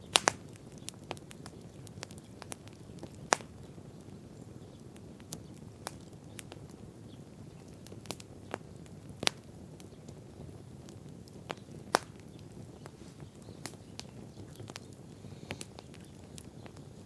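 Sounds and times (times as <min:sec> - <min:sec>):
fire crackles and pops: 0:00.0 - 0:17.0
wood fire burning: 0:00.0 - 0:17.0.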